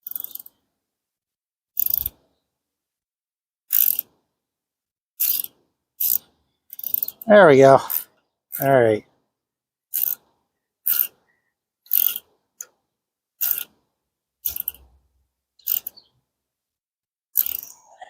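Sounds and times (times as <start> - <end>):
ratchet wrench clicking: 0.0 - 0.6, 1.8 - 2.2, 3.7 - 4.1, 5.2 - 7.2, 9.9 - 10.2, 10.9 - 11.2, 11.9 - 12.7, 13.4 - 13.8, 14.4 - 14.9, 15.6 - 16.0, 17.4 - 17.7.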